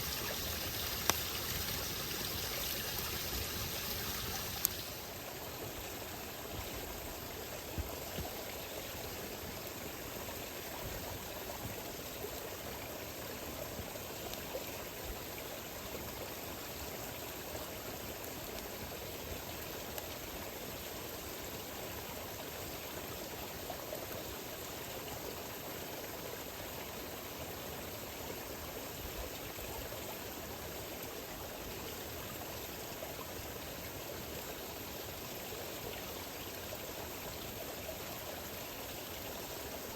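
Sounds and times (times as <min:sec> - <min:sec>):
campfire hissing and popping: 0:00.0 - 0:05.2.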